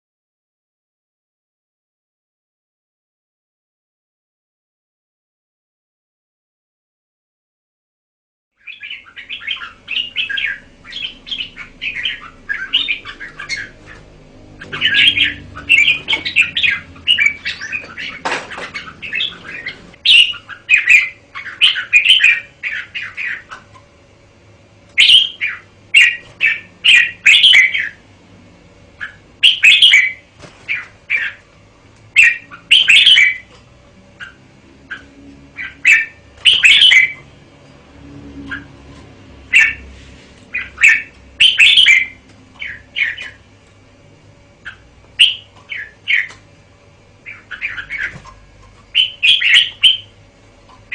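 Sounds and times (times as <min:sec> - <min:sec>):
bird chirping song: 0:08.6 - 0:23.9, 0:24.9 - 0:28.0, 0:29.0 - 0:31.5, 0:32.1 - 0:33.5, 0:34.2 - 0:39.9, 0:40.5 - 0:43.5, 0:44.6 - 0:46.4, 0:47.2 - 0:50.9.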